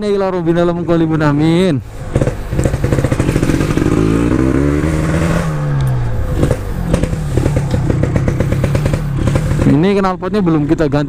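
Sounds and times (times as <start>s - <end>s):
motorcycle accelerating: 0.1s - 11.0s.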